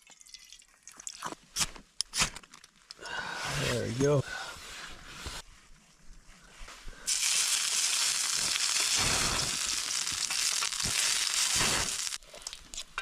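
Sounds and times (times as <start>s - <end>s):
food sizzling in a frying pan: 7.1s - 12.2s.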